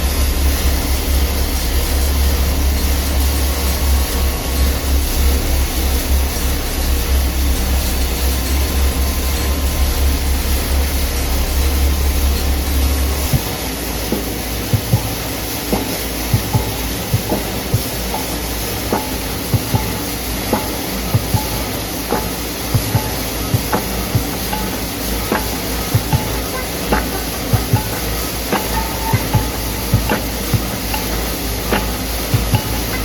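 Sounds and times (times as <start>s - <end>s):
deep hum: 0.0s - 13.6s
machinery running: 0.0s - 33.0s.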